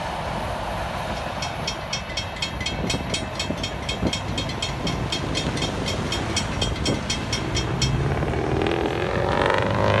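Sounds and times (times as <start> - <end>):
train cars rumbling on rails: 0.0 - 10.0
fast regular high ticking: 1.4 - 8.0
rising tone: 7.6 - 10.0.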